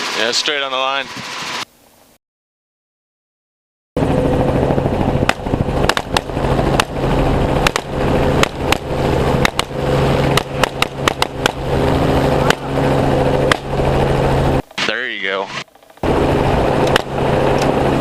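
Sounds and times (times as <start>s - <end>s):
helicopter rotor drone: 0.0s - 1.7s, 4.0s - 18.0s
rifle shots: 5.3s - 7.0s.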